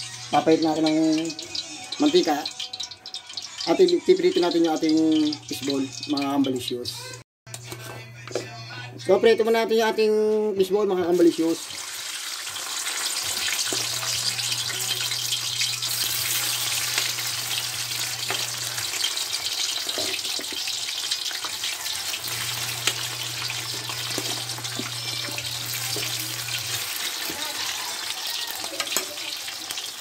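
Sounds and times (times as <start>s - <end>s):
fishballs sizzling in hot oil: 11.2s - 30.0s.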